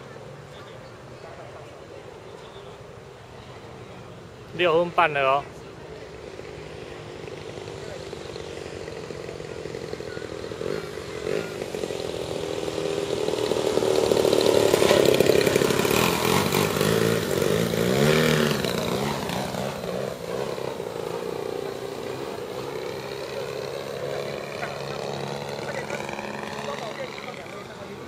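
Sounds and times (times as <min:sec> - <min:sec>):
model plane engine running: 0:06.2 - 0:28.0.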